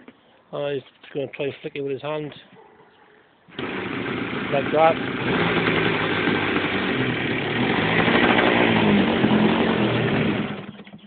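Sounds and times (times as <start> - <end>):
model aircraft engine running: 3.5 - 11.0.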